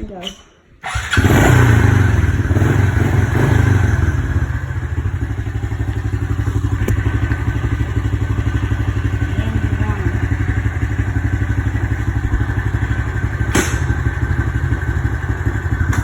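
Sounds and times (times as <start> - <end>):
dirt bike engine idling: 1.0 - 16.0
sharp click: 13.5 - 13.9.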